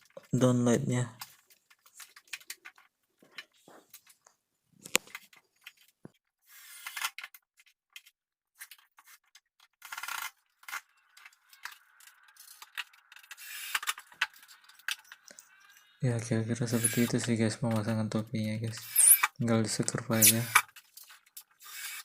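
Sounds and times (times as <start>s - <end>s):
small metal parts clinking: 9.9s - 15.8s.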